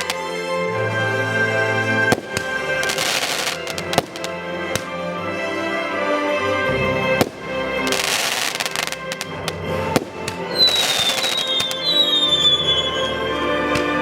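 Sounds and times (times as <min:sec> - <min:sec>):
fireworks crackling: 0:00.0 - 0:00.4, 0:02.1 - 0:05.0, 0:07.0 - 0:13.2
music playing: 0:00.0 - 0:14.0
fireworks bangs: 0:02.1 - 0:04.9, 0:07.0 - 0:13.0
high falling whistles: 0:10.6 - 0:13.5.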